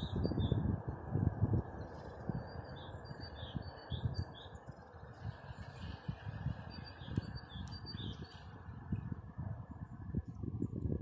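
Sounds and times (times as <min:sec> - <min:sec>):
low rumbling wind gusts: 0:00.0 - 0:11.0
songbirds chirping: 0:01.5 - 0:09.4.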